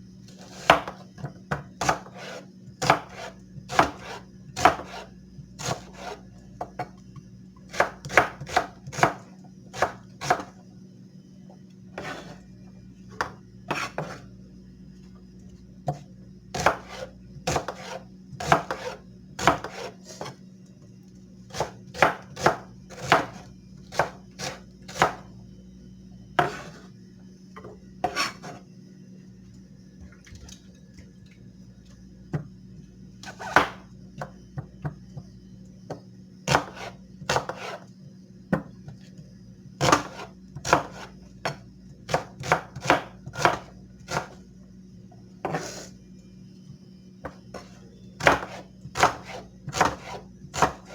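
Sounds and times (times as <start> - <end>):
knife chopping on cutting board: 0.4 - 6.8, 7.7 - 10.5, 13.2 - 14.2, 16.6 - 20.3, 21.5 - 25.2, 26.4 - 26.8, 33.2 - 34.3, 36.5 - 37.8, 39.8 - 44.4, 45.4 - 45.9, 47.2 - 50.9.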